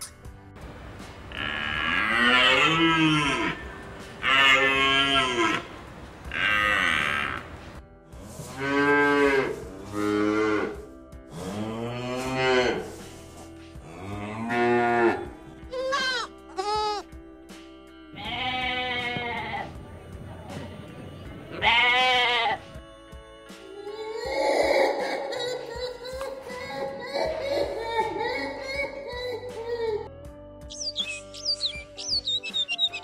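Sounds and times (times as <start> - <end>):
bull lowing: 1.2 - 15.4
goats bleating: 1.3 - 5.7, 15.7 - 17.1, 18.2 - 19.7, 21.5 - 22.6.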